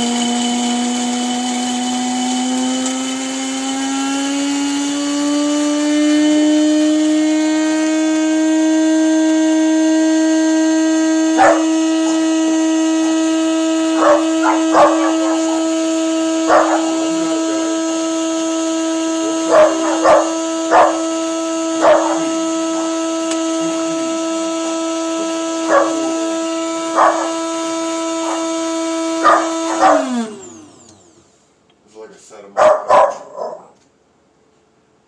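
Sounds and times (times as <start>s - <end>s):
coffee grinder motor whining: 0.0s - 31.4s
dog barking: 11.4s - 12.3s, 14.0s - 15.7s, 16.5s - 17.0s, 19.5s - 21.0s, 21.8s - 22.3s, 25.7s - 26.1s, 27.0s - 27.4s, 28.2s - 28.4s, 29.2s - 30.2s, 32.6s - 33.8s.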